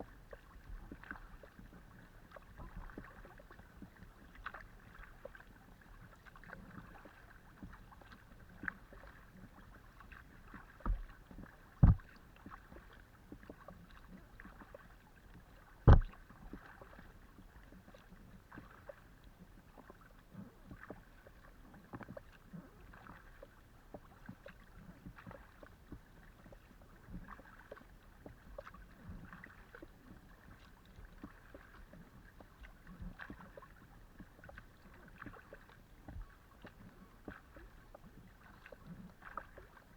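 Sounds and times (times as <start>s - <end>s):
paddle splashes and drips: 0.0s - 39.9s
sharp knocks: 15.9s - 16.1s.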